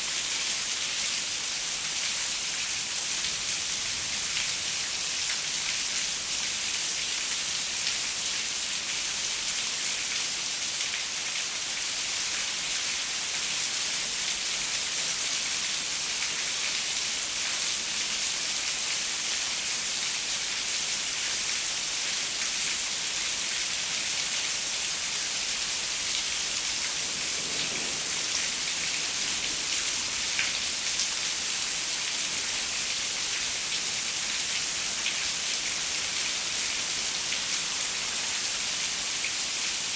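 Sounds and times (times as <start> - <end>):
rain pattering on a window: 1.8 - 39.9.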